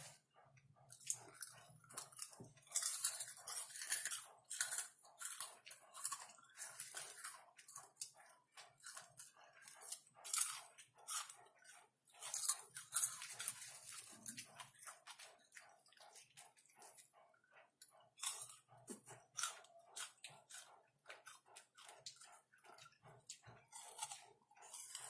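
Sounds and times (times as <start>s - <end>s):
popcorn chewing crunches: 0.9s - 17.4s, 18.1s - 25.0s.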